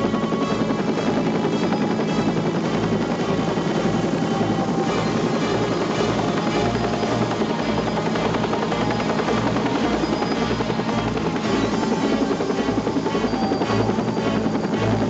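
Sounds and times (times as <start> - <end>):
background music with steady beat: 0.0 - 15.0
helicopter rotor and engine: 0.0 - 15.0.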